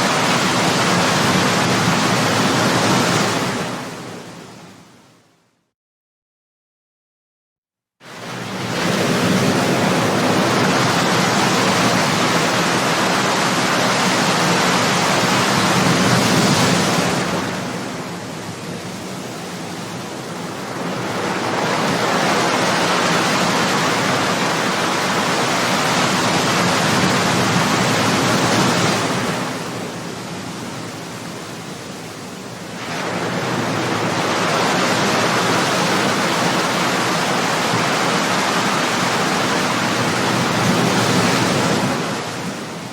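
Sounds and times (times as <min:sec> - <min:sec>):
ocean waves breaking: 0:00.0 - 0:04.8, 0:08.0 - 0:42.9.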